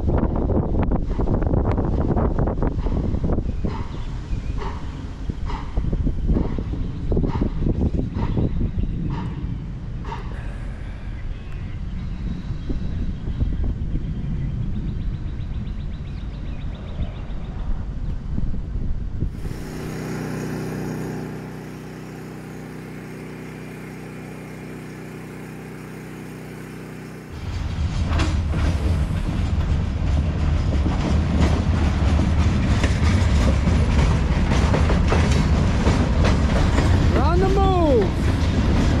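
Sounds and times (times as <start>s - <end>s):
train wheels rumbling on rails: 0.0s - 16.2s, 19.3s - 39.0s
wheels clicking over rail joints: 19.3s - 39.0s.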